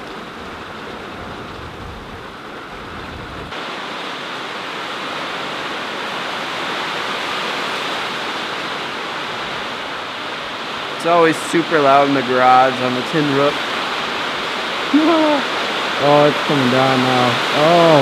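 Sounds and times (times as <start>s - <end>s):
low thunder rumble: 0.0s - 3.5s
heavy rain on a tin roof: 0.0s - 18.0s.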